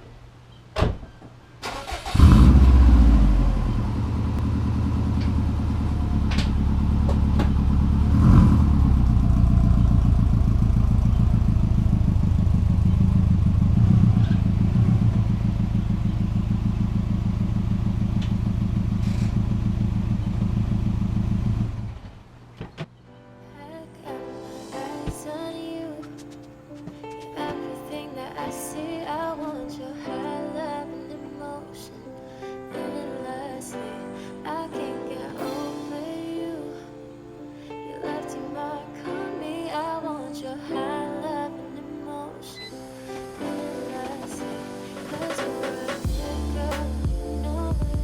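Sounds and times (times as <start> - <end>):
car engine switched off: 1.6 - 22.2
car engine starting and idling: 1.6 - 22.4.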